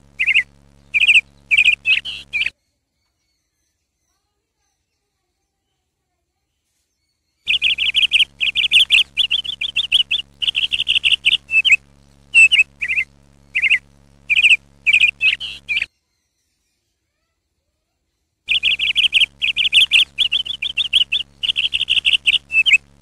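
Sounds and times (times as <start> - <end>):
sparrows alarm chirping: 0.0 - 2.5, 7.5 - 15.9, 18.5 - 23.0.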